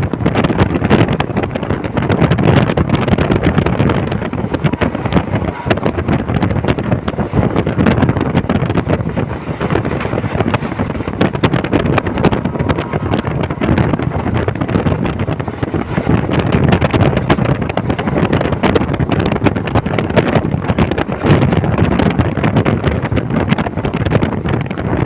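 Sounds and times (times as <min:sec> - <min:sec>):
passenger train rattling: 0:00.0 - 0:25.0
wind buffeting microphone: 0:00.0 - 0:25.0.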